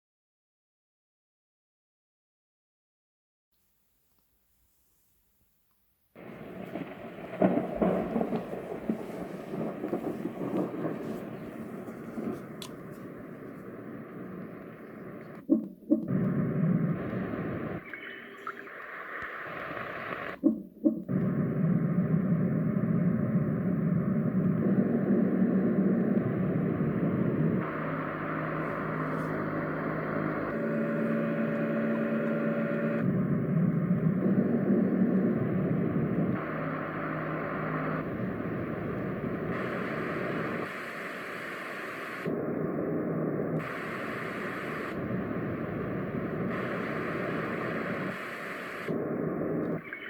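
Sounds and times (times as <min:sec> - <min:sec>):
low rumbling noise from speaker: 0:06.2 - 0:17.8
bright noise with hum: 0:06.2 - 0:50.0
white noise machine: 0:06.2 - 0:50.0
short electronic blips: 0:17.6 - 0:18.9, 0:49.6 - 0:50.0.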